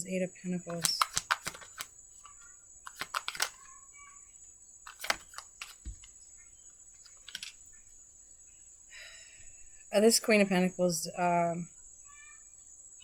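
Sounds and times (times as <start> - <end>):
cards clicking and snapping: 0.7 - 3.6, 4.9 - 6.1, 7.0 - 7.6.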